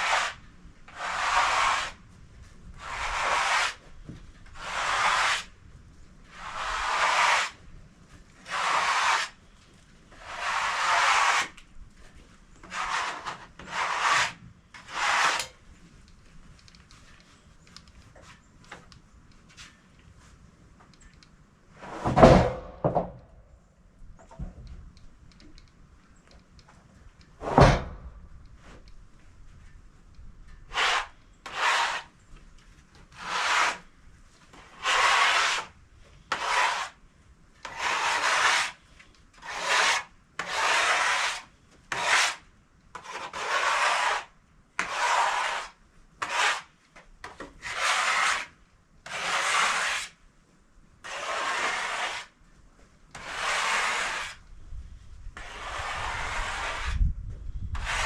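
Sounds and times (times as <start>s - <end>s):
rasping rubbing strokes: 0.0s - 2.0s, 2.8s - 3.8s, 4.6s - 5.5s, 6.3s - 7.6s, 8.4s - 9.4s, 10.2s - 11.6s, 12.6s - 15.6s, 30.7s - 32.2s, 33.1s - 33.9s, 34.5s - 37.0s, 37.6s - 42.4s, 43.0s - 46.7s, 47.6s - 50.2s, 51.0s - 52.4s, 53.2s - 54.4s, 55.4s - 57.0s, 57.8s - 58.0s.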